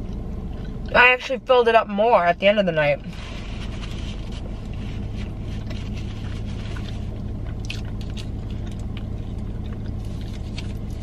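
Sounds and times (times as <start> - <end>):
person chewing: 0.0 - 0.9, 3.8 - 11.0
low car cabin hum: 0.0 - 11.0.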